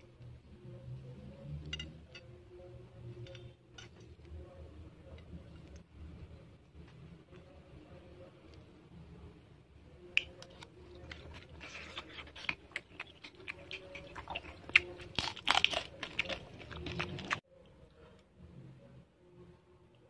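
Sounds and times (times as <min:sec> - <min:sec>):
person crunching fried insects: 0:10.2 - 0:17.4.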